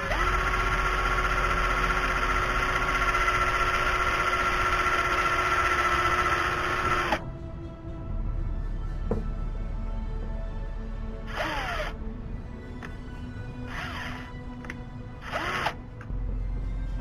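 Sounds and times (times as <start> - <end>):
cordless drill motor running: 0.0 - 7.2, 11.3 - 12.0, 13.6 - 16.0.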